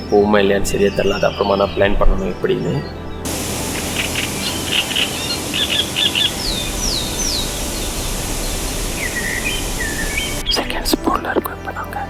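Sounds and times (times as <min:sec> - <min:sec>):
bird whistles down-slurred: 0:03.3 - 0:10.5
birds chirping: 0:03.3 - 0:10.6
forest ambience hiss: 0:03.3 - 0:10.8.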